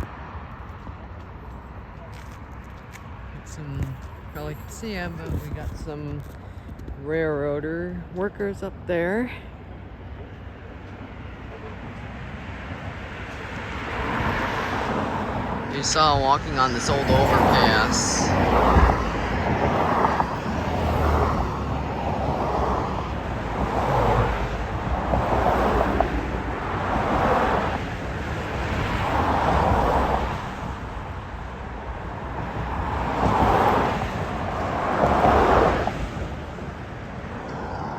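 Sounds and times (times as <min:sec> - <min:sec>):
low traffic rumble: 0:00.0 - 0:37.9
wind on microphone: 0:03.4 - 0:07.0, 0:14.0 - 0:37.9.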